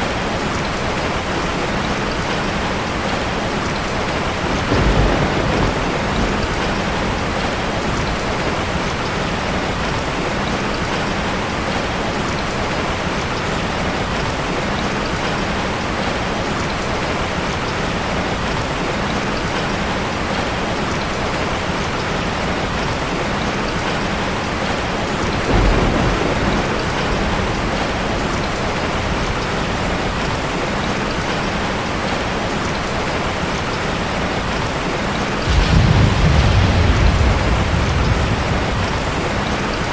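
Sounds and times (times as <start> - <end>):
heavy rain pouring: 0.0 - 39.9
low rumble of thunder: 2.2 - 11.8, 24.6 - 31.3, 35.2 - 39.9.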